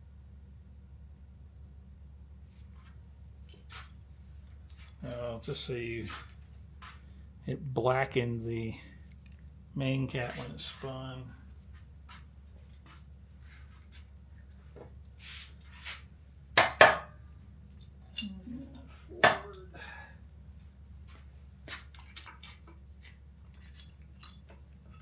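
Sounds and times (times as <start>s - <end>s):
metal parts and tools clanking: 17.8s - 18.5s, 19.2s - 19.7s.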